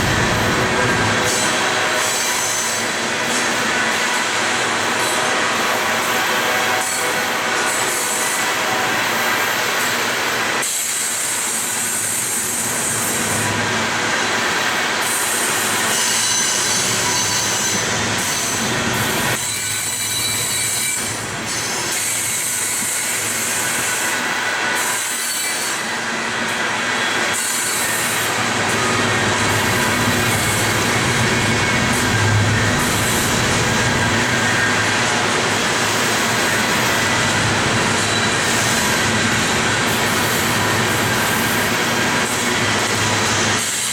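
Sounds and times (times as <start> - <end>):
train wheels rumbling on rails: 0.0 - 43.9
high wheel squeal: 15.4 - 26.2, 26.9 - 39.2.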